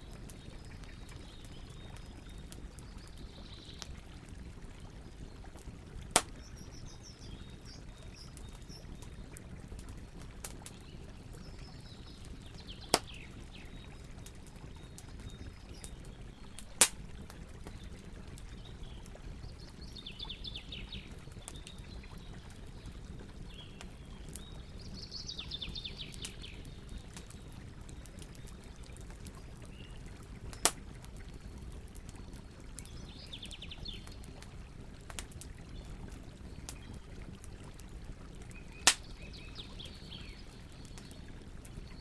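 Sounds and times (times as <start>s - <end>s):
campfire crackling: 0.0s - 42.0s
loud sharp pops: 6.2s - 6.4s.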